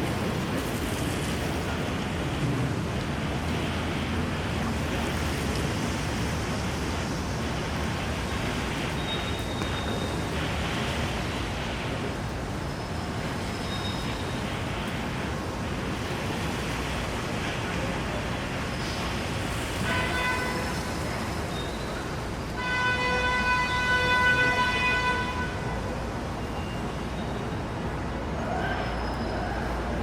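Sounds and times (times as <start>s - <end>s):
steady rain: 0.0s - 30.0s
street traffic: 0.0s - 30.0s
vehicle horn honking: 19.8s - 20.9s, 22.6s - 25.9s.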